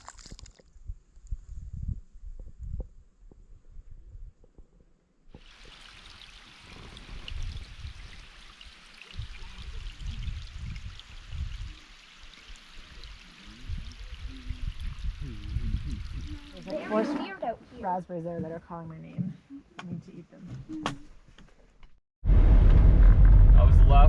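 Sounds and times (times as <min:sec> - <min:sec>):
wind rumble on microphone: 0:00.7 - 0:04.9, 0:06.6 - 0:08.4, 0:09.1 - 0:11.9, 0:12.8 - 0:16.7
running water hiss: 0:05.4 - 0:17.3.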